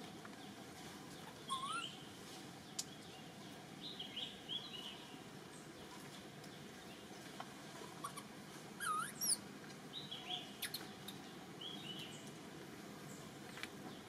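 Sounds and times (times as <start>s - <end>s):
birds chirping: 0.0s - 12.4s
steady background hiss: 0.0s - 14.0s.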